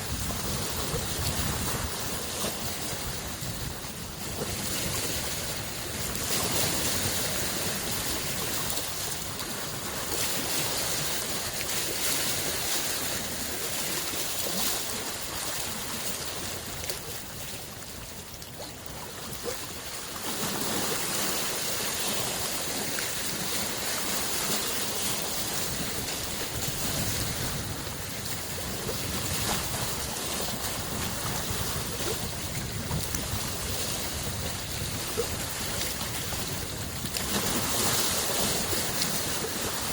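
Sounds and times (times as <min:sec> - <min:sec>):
lake waves washing onto shore: 0:00.0 - 0:39.9.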